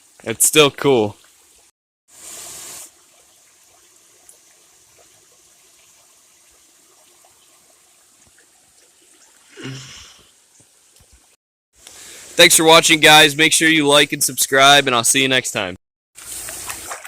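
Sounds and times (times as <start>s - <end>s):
creek water trickling: 0.0s - 12.8s, 16.2s - 17.0s.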